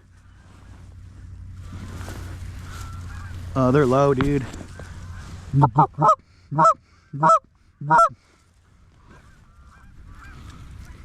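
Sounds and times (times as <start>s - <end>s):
distant geese honking: 0.0s - 11.0s
goose honks: 2.7s - 3.8s, 5.0s - 8.2s, 9.0s - 11.0s.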